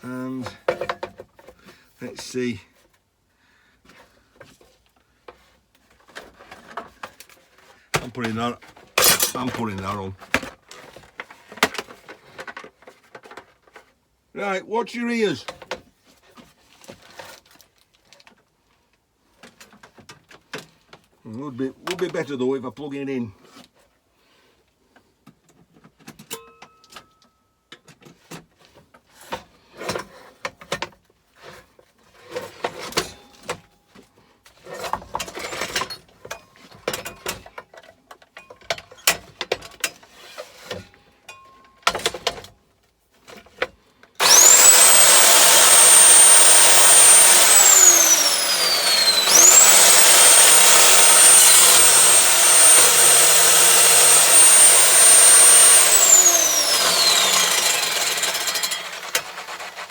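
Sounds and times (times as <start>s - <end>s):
saw blade cutting metal: 9.0s - 9.4s, 44.2s - 59.9s
chop saw motor whining: 9.0s - 9.5s, 44.2s - 59.9s.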